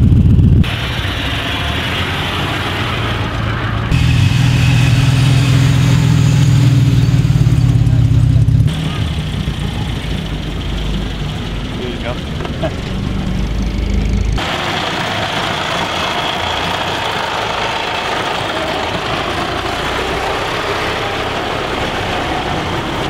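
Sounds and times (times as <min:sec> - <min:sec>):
car engines driving past: 0:00.0 - 0:23.0.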